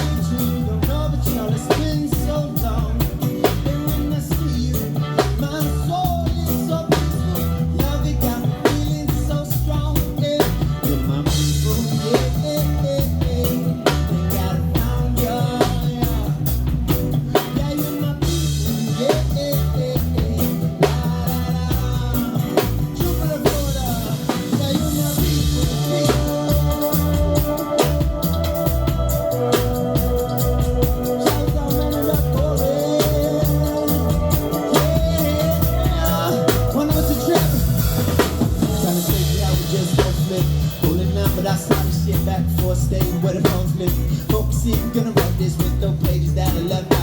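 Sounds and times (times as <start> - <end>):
bass line: 0.0 - 47.0
drum kit with rimshots: 0.0 - 47.0.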